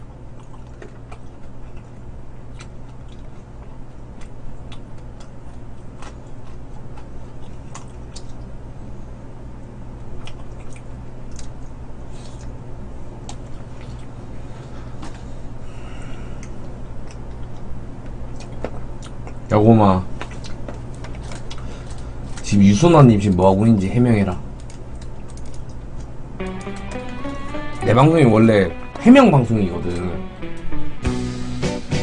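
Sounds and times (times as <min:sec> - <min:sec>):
person chewing and lip smacking: 0:00.4 - 0:08.5, 0:10.2 - 0:12.6, 0:18.3 - 0:19.5, 0:20.2 - 0:21.7.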